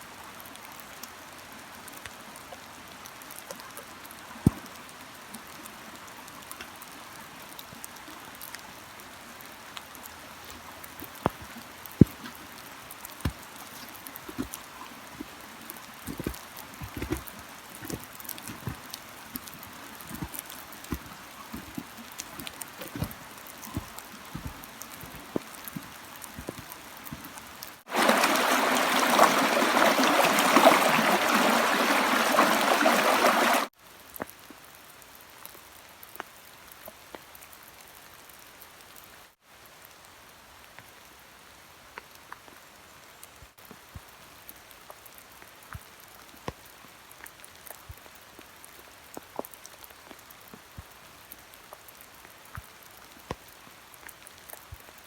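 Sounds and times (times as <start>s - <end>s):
rain falling: 0.0s - 55.0s
raindrops tapping: 4.4s - 5.6s, 6.2s - 34.3s
heavy downpour: 22.2s - 41.8s.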